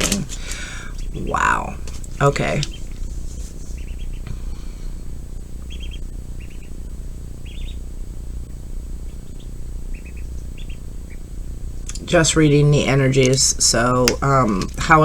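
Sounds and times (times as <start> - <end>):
steady low hum: 0.0 - 15.0
small bird chirping: 1.0 - 8.0, 9.0 - 12.1.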